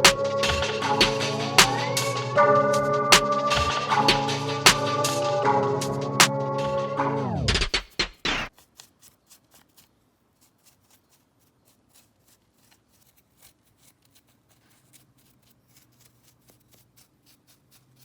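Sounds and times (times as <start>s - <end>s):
music cue: 0.0s - 8.5s
hand scratching drywall: 8.5s - 18.0s.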